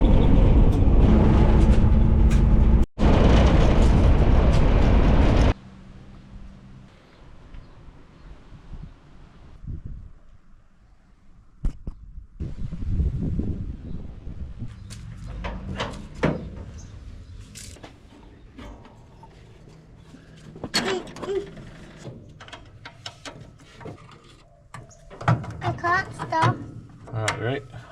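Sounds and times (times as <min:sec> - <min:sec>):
low rumble: 0:00.0 - 0:06.9, 0:12.1 - 0:20.7
knocks and clunks: 0:15.0 - 0:27.6.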